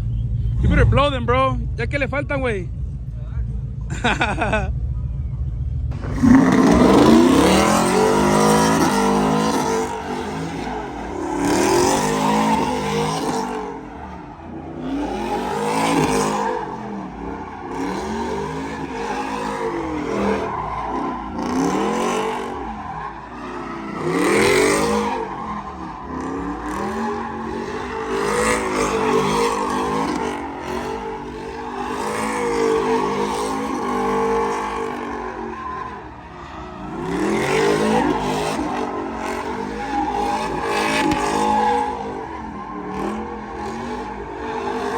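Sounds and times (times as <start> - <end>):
engine revving: 5.9 - 44.9
tires squealing: 5.9 - 44.9.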